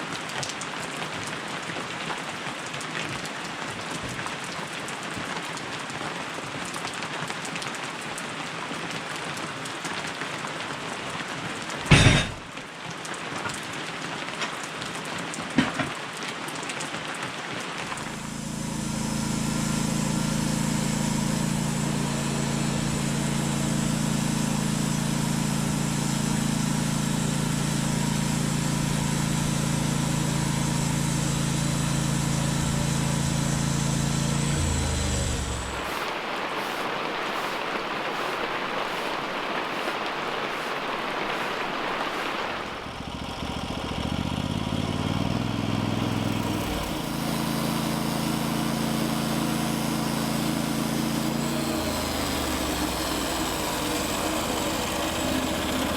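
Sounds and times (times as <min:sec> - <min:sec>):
steady rain falling: 0:00.0 - 0:55.9
sharp knock: 0:11.9 - 0:12.4
low engine-like hum: 0:17.9 - 0:55.9.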